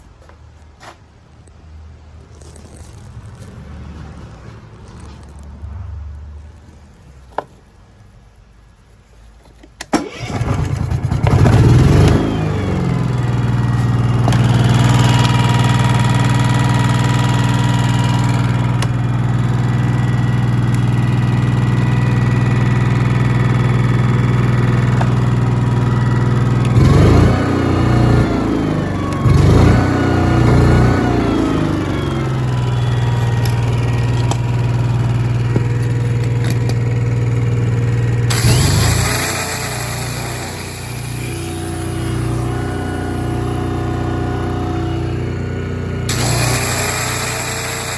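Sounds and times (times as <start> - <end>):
engine cranking and running: 9.8 - 47.9.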